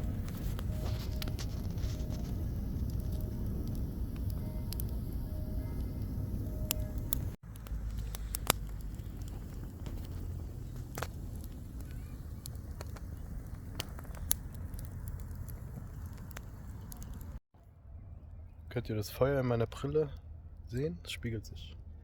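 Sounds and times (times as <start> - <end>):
campfire crackling: 0.0 - 17.4
sharp fire pops: 0.0 - 17.4
low rumble: 0.0 - 18.6.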